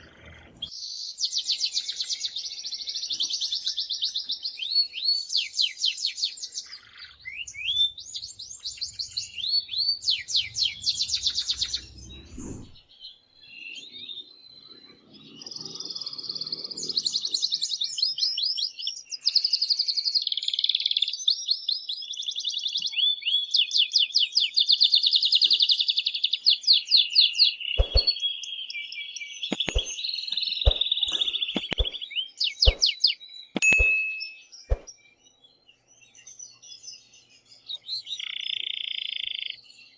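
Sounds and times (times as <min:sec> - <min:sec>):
canary singing trills: 0:00.0 - 0:39.9
sharp clicks: 0:27.8 - 0:28.1, 0:29.5 - 0:32.0, 0:32.6 - 0:33.0, 0:33.6 - 0:34.0.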